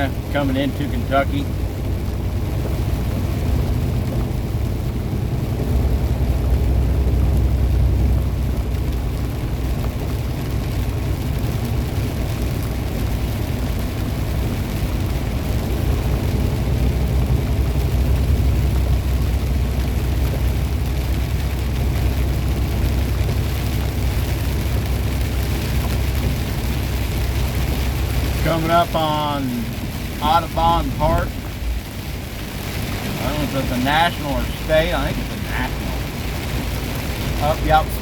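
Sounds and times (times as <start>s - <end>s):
truck engine and tyres rumbling: 0.0s - 38.0s.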